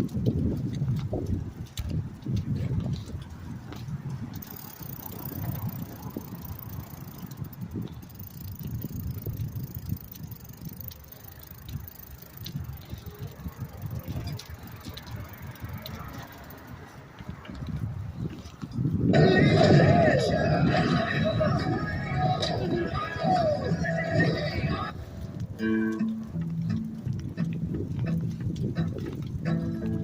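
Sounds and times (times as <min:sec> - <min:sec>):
bicycle riding rumble: 0:00.0 - 0:30.0
small clicks and rattles: 0:04.3 - 0:16.8.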